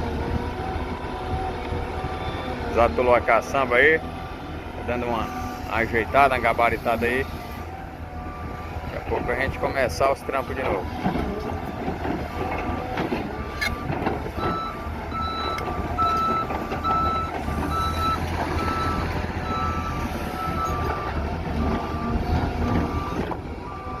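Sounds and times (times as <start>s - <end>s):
diesel engine rumble: 0.0s - 24.0s.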